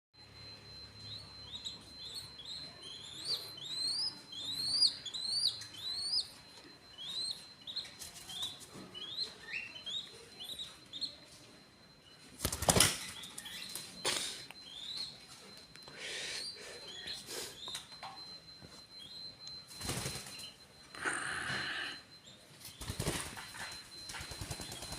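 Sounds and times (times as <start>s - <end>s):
pigeon chick peeping: 0.8s - 11.4s, 12.0s - 20.6s, 22.2s - 24.9s
wings flapping: 12.4s - 13.2s, 19.8s - 20.5s, 22.8s - 24.9s.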